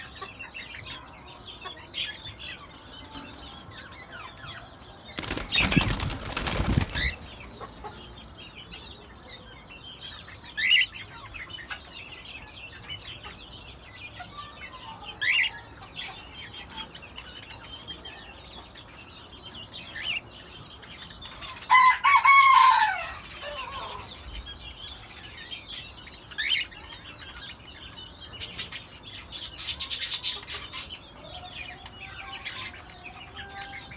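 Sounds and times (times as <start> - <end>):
wing-flapping: 5.2 - 7.6.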